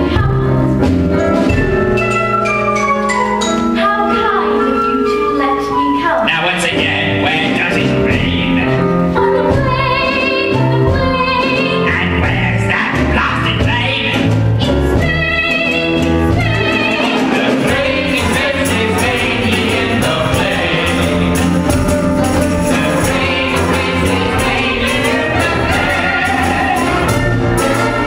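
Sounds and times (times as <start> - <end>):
orchestra playing show tune: 0.0 - 28.0
voices singing: 16.4 - 28.0.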